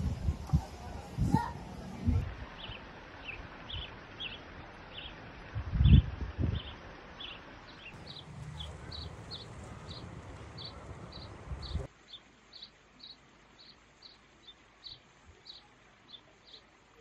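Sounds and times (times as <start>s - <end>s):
low wind rumble: 0.0s - 7.2s, 7.9s - 11.9s
small bird chirping: 5.8s - 16.7s.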